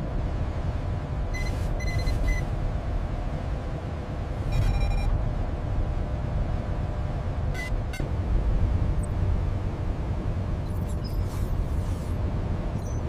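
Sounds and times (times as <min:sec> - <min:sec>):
electronic beeps: 0:01.4 - 0:02.4, 0:04.5 - 0:05.1.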